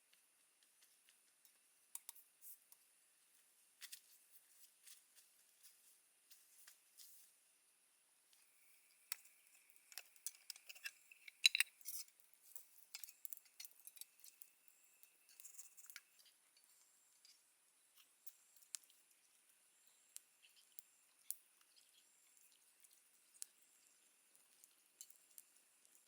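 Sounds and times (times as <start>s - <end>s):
small objects clicking and tapping: 0.1s - 2.8s, 8.3s - 26.0s.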